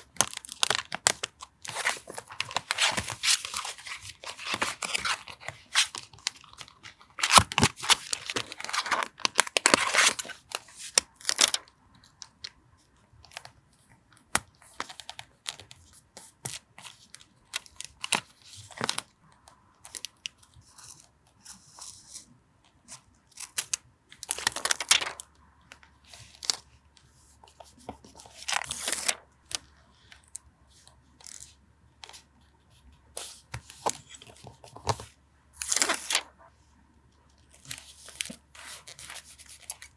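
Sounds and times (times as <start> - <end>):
paper tearing and rustling: 0.2 - 11.6, 24.3 - 25.2.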